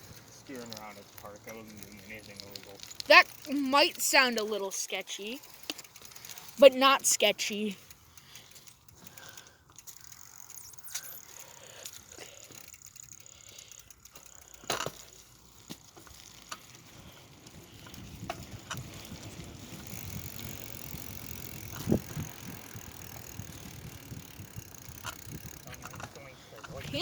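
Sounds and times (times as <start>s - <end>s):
bicycle rattling clicks: 0.0s - 27.0s.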